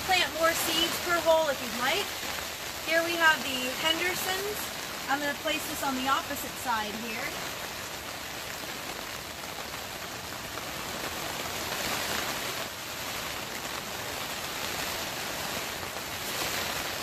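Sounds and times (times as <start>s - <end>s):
rain on a plastic cover: 0.0s - 17.0s.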